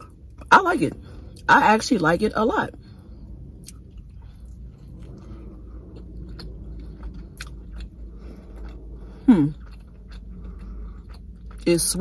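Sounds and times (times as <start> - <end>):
chewing and biting sandwich: 2.8 - 12.0.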